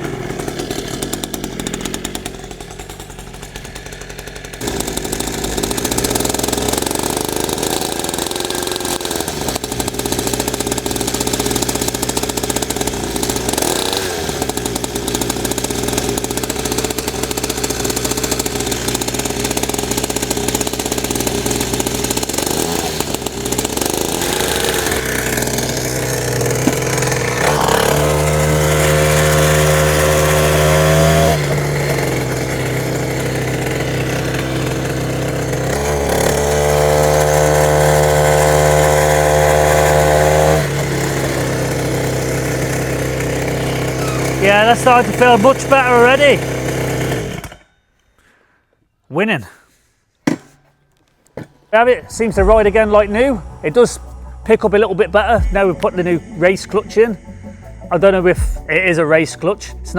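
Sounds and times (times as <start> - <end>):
small two-stroke engine running: 0.0 - 47.7, 52.3 - 59.9.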